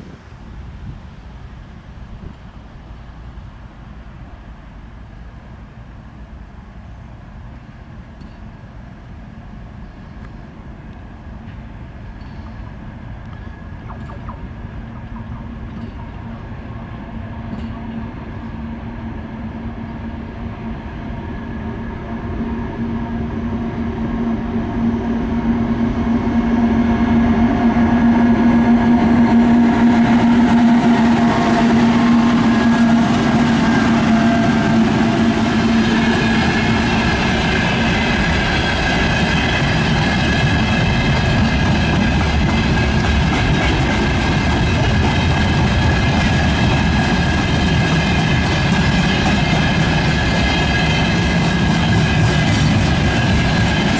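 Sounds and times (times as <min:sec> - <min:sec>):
diesel locomotive engine drone: 0:00.0 - 0:53.9
ringing wheel-on-rail tones: 0:13.3 - 0:19.2
freight wagons rumbling: 0:29.2 - 0:53.9.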